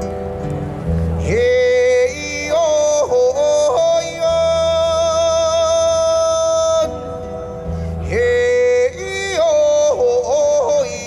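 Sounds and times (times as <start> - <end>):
low instrumental accompaniment: 0.0 - 5.9
man singing wordless vocables: 1.2 - 11.0.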